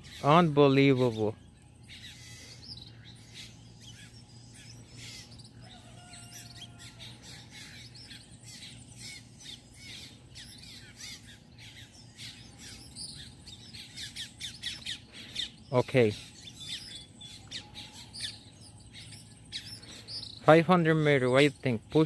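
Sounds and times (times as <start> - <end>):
low steady hum: 0.0 - 22.0
small birds chirping: 0.0 - 22.0.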